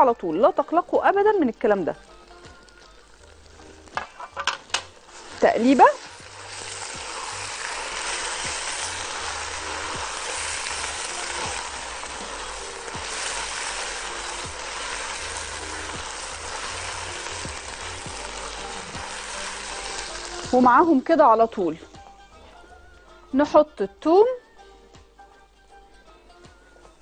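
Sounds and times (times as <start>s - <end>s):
chicken sizzling in a pot: 1.0s - 21.8s
spatula stirring: 5.0s - 20.6s.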